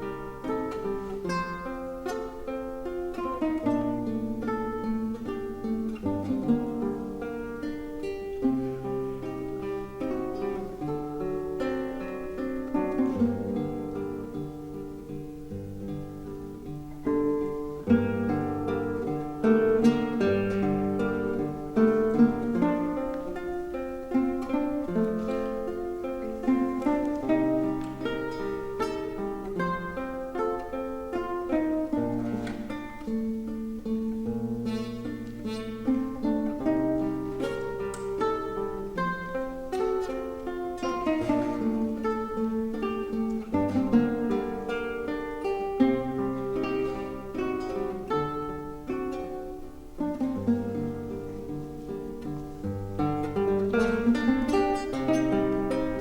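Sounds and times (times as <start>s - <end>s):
classical guitar ensemble: 0.0s - 56.0s.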